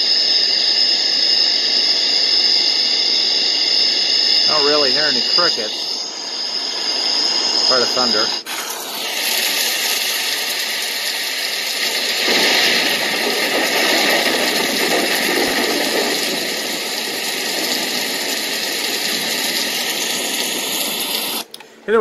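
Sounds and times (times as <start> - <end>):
hiss of rain-like noise: 8.8 - 21.5
low thunder rumble: 12.2 - 18.4.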